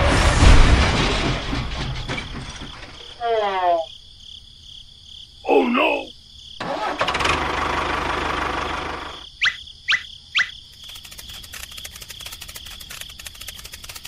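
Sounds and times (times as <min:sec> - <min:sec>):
loud engine-like noise: 0:06.6 - 0:09.2
rapid rattling clicks: 0:10.7 - 0:14.0.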